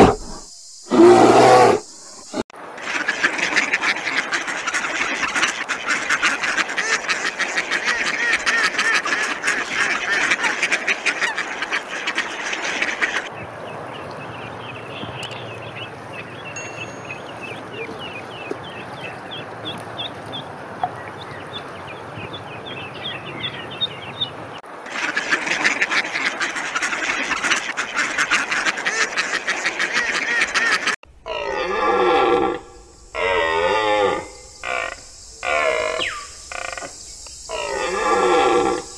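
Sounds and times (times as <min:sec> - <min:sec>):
loud pitched animal calls: 0:00.0 - 0:03.7, 0:28.9 - 0:36.9, 0:37.5 - 0:38.9
waterfowl flock calling: 0:02.8 - 0:13.3, 0:22.6 - 0:31.4.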